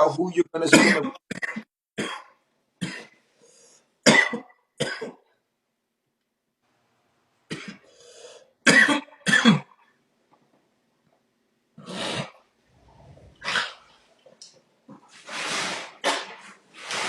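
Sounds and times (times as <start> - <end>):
man coughing: 0.7 - 3.2, 4.0 - 5.2, 8.6 - 9.8.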